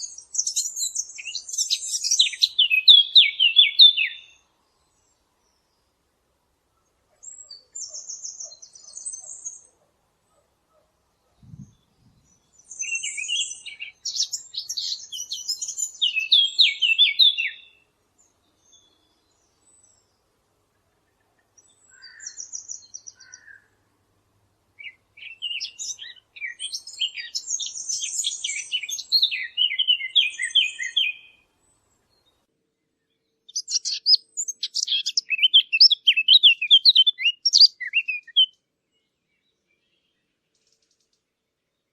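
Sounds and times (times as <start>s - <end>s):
songbird singing: 0.0s - 41.9s
short bird calls: 21.1s - 23.8s.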